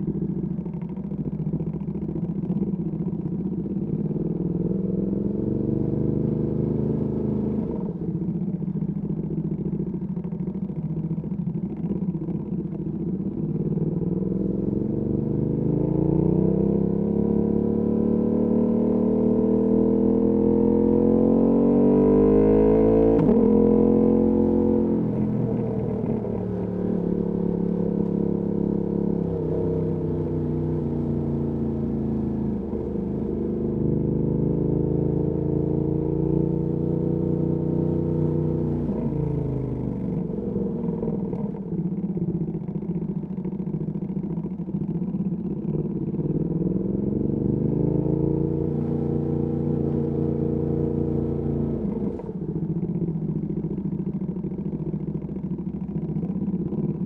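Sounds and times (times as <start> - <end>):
motorcycle engine revving: 14.1 - 41.8, 45.7 - 55.0.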